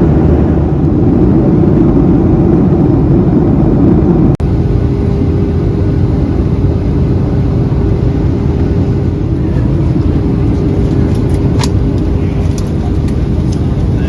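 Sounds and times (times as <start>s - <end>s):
airliner cabin rumble: 0.0s - 14.0s.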